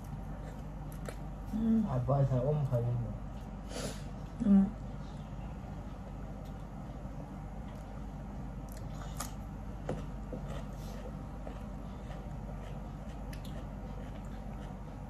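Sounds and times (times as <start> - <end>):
person biting and chewing: 0.0 - 1.5, 8.6 - 15.0
steady low hum: 0.0 - 15.0.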